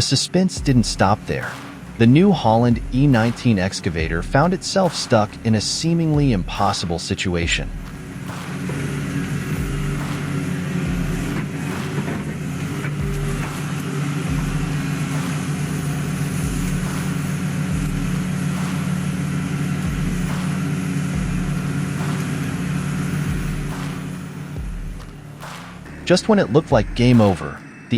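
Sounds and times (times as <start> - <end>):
diesel engine running with low throb: 0.6 - 6.8, 7.4 - 27.8.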